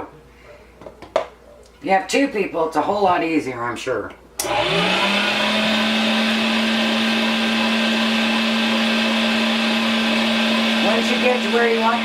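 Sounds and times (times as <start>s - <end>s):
electric meat grinder motor: 4.4s - 12.0s.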